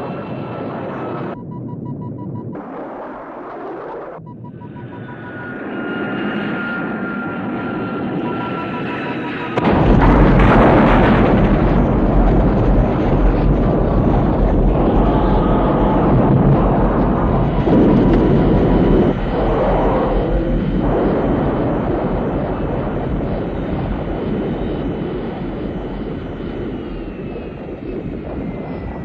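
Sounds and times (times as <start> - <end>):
jet engines whining: 0.0 - 29.0
jet sliding over ground: 0.0 - 29.0
rapid warning beep: 1.3 - 2.6, 4.2 - 9.6
heavy rumbling crash: 9.5 - 29.0.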